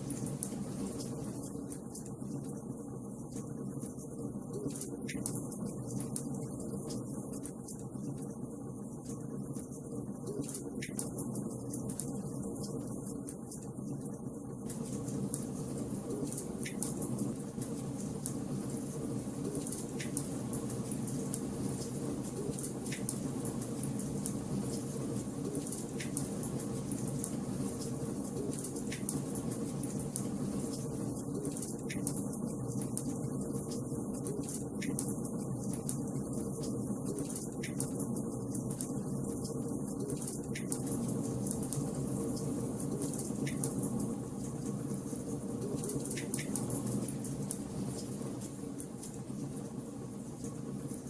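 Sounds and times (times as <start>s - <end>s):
wood fire crackling: 14.6s - 51.0s
fire pops and snaps: 19.5s - 27.4s.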